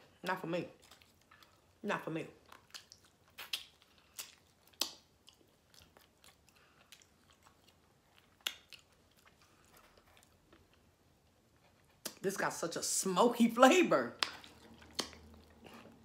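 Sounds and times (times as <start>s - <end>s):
person chewing meat: 0.8s - 1.8s, 2.4s - 12.2s, 14.2s - 16.0s
wet mouth clicks: 2.5s - 5.4s, 14.2s - 16.0s.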